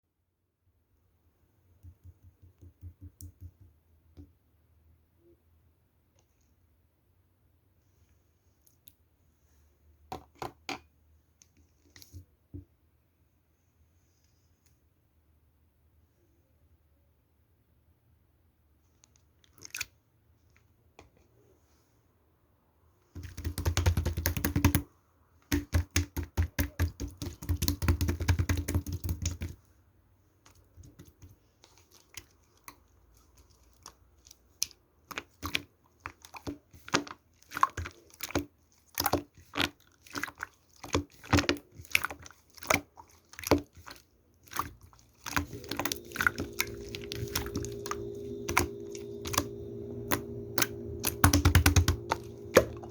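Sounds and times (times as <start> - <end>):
slime squeezed wet clicking: 19.4 - 19.9, 33.4 - 52.8
steady low hum: 45.3 - 52.9.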